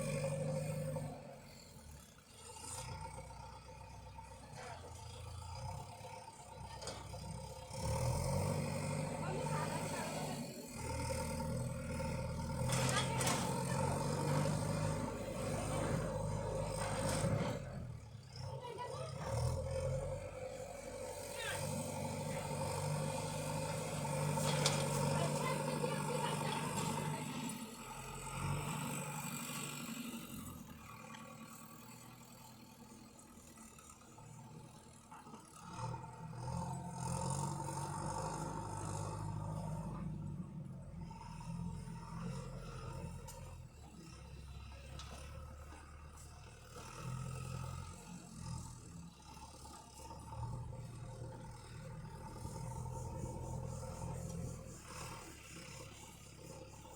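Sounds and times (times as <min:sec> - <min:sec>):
tractor engine running: 0:00.0 - 0:56.9
rattling clatter: 0:12.5 - 0:17.8.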